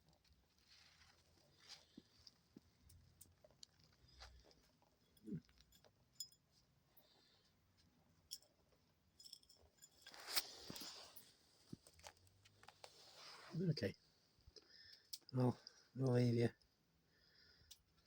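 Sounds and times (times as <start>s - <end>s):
soft rustle: 0.0s - 14.1s.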